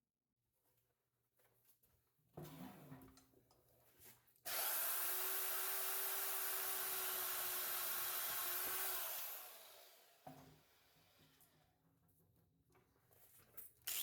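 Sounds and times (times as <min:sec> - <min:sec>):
power tool running: 0:04.5 - 0:11.0.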